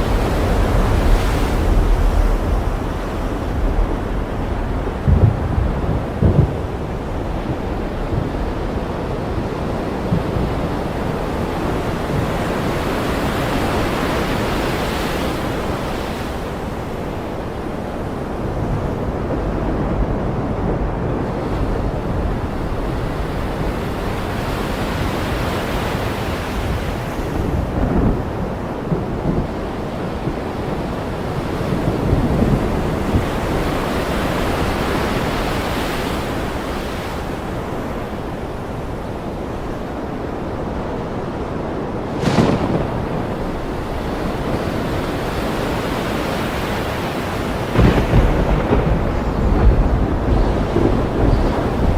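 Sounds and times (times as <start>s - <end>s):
low thunder rumbles: 0.0s - 13.2s, 41.9s - 45.8s, 47.5s - 51.9s
ocean waves washing in: 0.0s - 51.9s.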